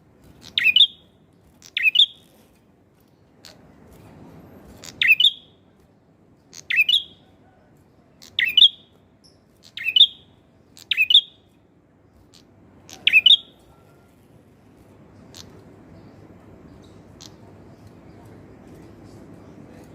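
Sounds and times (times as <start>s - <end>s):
bird singing sharp chirps: 0.4s - 1.0s, 1.6s - 2.2s, 4.8s - 5.5s, 6.6s - 7.2s, 8.2s - 11.4s, 12.9s - 13.6s.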